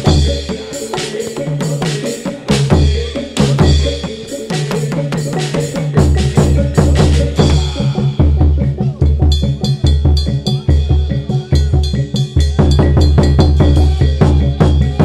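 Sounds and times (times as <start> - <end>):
rapid drum strokes: 0.0 - 15.0
deep booming bass beats: 6.0 - 15.0.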